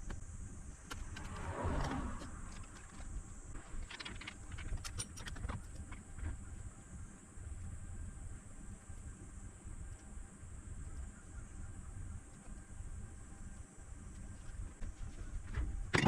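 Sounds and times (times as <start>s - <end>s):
soft rustling of objects: 13.5s - 16.0s.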